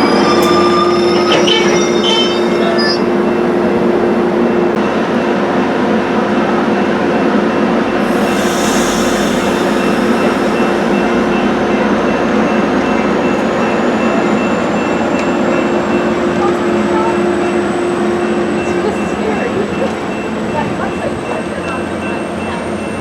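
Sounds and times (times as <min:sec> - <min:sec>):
train rumbling: 0:00.0 - 0:23.0
brief hiss: 0:08.0 - 0:11.9
faint high whine: 0:08.0 - 0:13.1.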